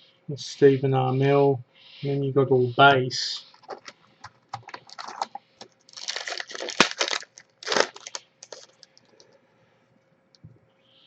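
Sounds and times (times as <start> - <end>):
cards rustling and clicking: 3.4 - 9.2
card wrapper crinkling and tearing: 3.6 - 9.2.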